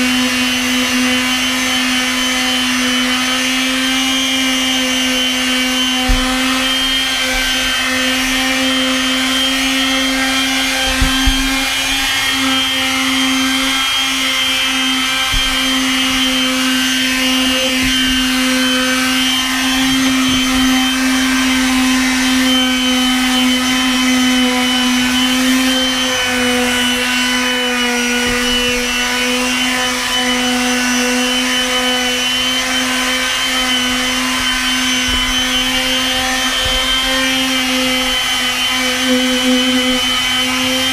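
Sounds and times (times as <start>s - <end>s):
palm sander motor hum: 0.0s - 40.9s.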